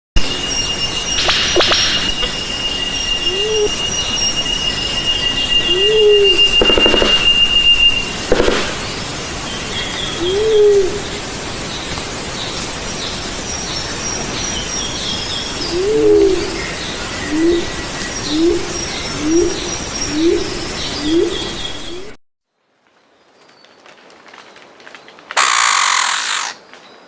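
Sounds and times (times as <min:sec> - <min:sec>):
steady hiss: 0:00.2 - 0:21.5
dove cooing: 0:10.2 - 0:11.1, 0:15.7 - 0:16.7
small birds chirping and trilling: 0:25.4 - 0:27.0.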